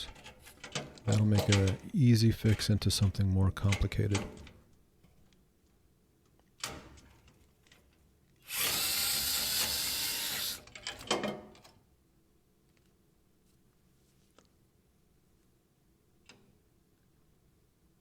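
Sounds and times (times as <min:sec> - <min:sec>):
clicks and rattles: 0:00.1 - 0:01.8
cordless drill spinning: 0:08.4 - 0:10.7.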